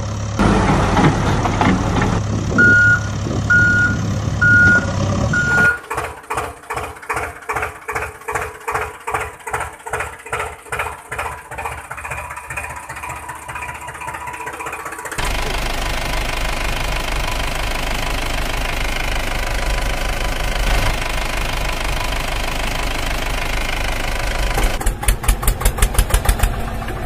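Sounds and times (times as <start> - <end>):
diesel engine chugging: 0.0 - 27.0
reversing alarm beeps: 2.6 - 5.8.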